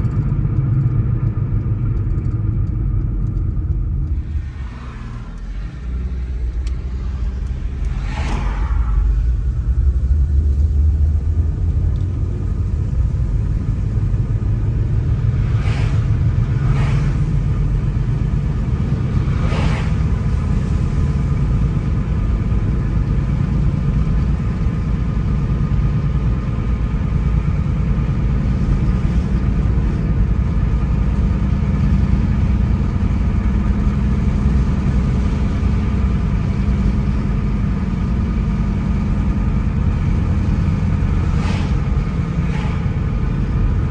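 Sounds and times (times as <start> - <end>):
car engine and tyre rumble: 0.0 - 43.9
short rushes of noise: 4.2 - 9.6, 41.1 - 43.6.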